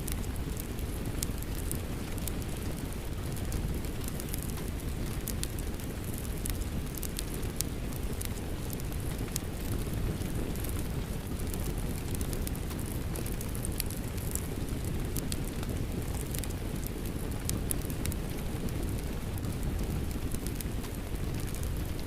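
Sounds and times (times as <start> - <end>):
steady rain: 0.0 - 22.0
wood fire crackling: 0.0 - 22.0.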